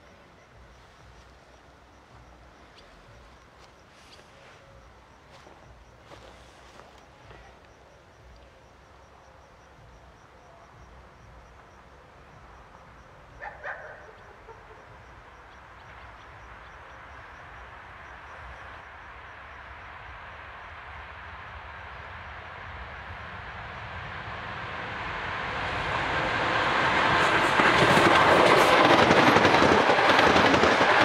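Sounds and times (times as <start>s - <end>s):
distant train rolling: 0.0s - 31.0s
dog barking: 13.4s - 14.8s.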